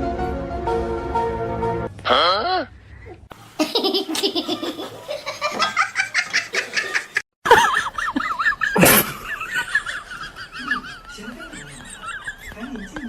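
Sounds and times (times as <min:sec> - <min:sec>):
person laughing: 0:03.6 - 0:13.0.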